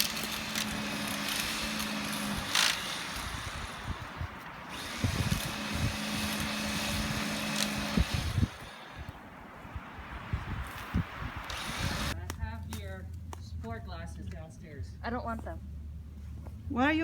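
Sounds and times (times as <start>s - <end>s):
small motor humming: 0.0s - 9.2s, 11.4s - 12.2s.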